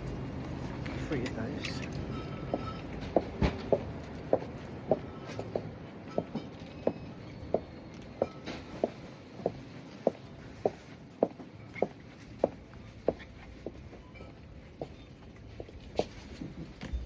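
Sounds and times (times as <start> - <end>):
heeled boots clicking on floor: 2.4 - 14.0.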